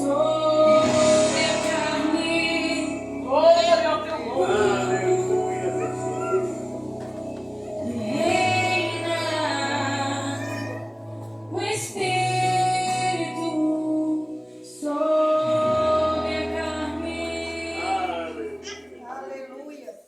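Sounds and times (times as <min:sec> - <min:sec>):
sustained low chords: 0:00.0 - 0:14.1
woman singing worship song: 0:00.0 - 0:19.5.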